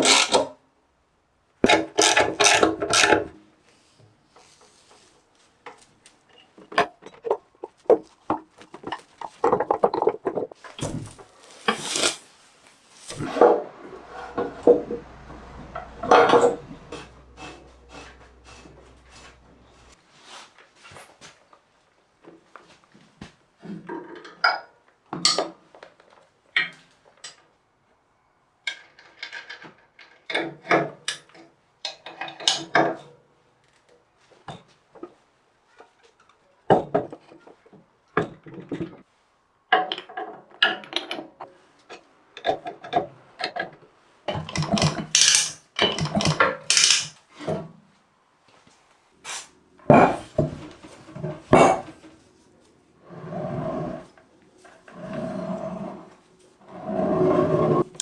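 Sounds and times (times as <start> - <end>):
hand tool scraping and rubbing: 1.7 - 3.3, 10.7 - 20.0, 44.6 - 47.2
clicks and knocks: 44.5 - 47.2.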